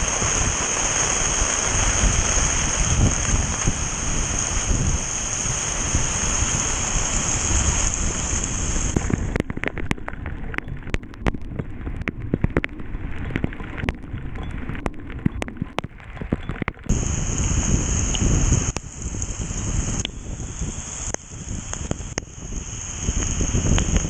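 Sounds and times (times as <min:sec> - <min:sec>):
heavy rain pouring: 0:00.0 - 0:24.0
large drops ticking on hard surface: 0:08.9 - 0:17.4.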